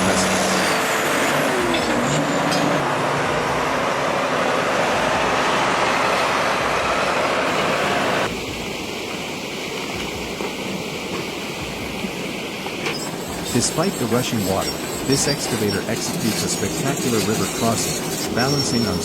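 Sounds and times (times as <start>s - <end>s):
heavy truck engines: 0.0s - 8.3s.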